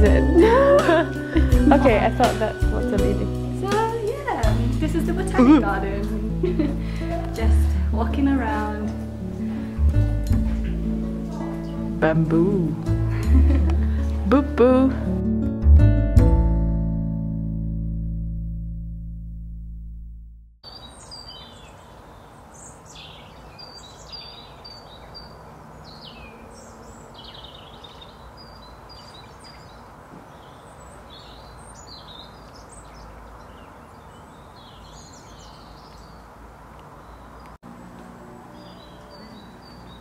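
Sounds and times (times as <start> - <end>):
steady outdoor hiss: 0.0 - 14.4, 20.6 - 40.0
songbirds chirping and trilling: 3.6 - 14.2, 20.6 - 40.0.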